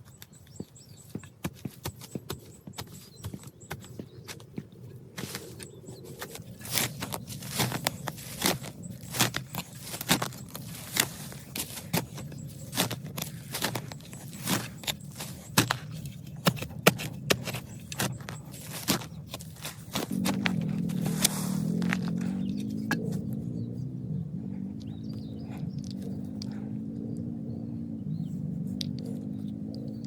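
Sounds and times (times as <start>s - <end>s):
scraping and rustling: 5.2s - 23.2s.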